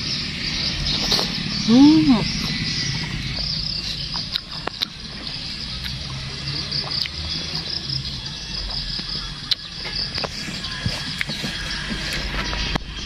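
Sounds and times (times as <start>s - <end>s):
insects chirring: 0.0s - 13.0s
mouth chewing fruit: 0.7s - 12.8s
sharp mouth clicks: 2.4s - 5.0s, 6.8s - 7.2s.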